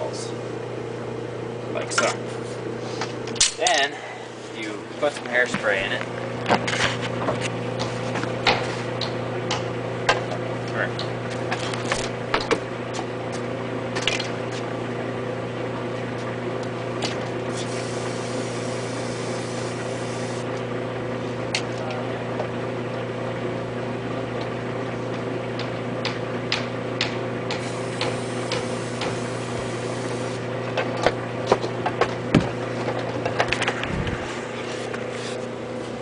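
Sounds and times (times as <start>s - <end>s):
steady electrical hum: 0.0s - 36.0s.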